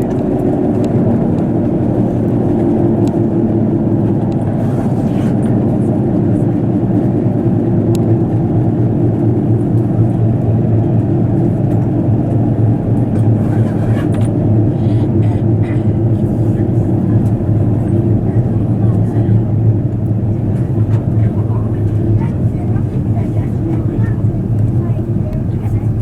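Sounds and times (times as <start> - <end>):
train engine and wheels rumbling: 0.0 - 26.0.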